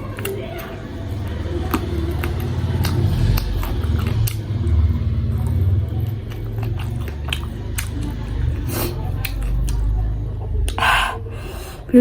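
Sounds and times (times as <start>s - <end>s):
chewing and biting: 0.0s - 10.0s
steady low rumble: 0.8s - 11.6s.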